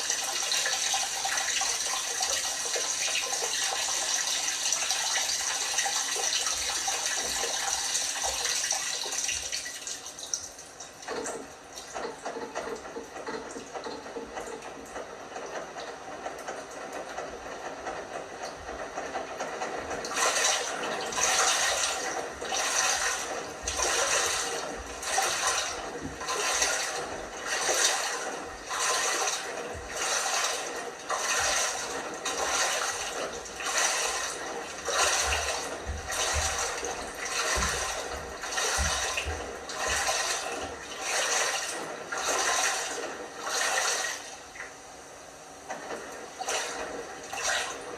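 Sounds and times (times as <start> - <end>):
water sloshing in drum: 0.0 - 14.9, 19.6 - 44.7, 46.4 - 47.9
water rushing in: 20.0 - 44.5.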